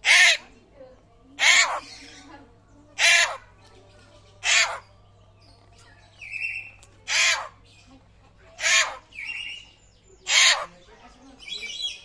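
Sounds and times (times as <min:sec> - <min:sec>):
bird giving harsh calls: 0:00.0 - 0:00.6, 0:01.4 - 0:02.3, 0:03.0 - 0:03.5, 0:04.4 - 0:04.9, 0:06.2 - 0:07.7, 0:08.6 - 0:12.0.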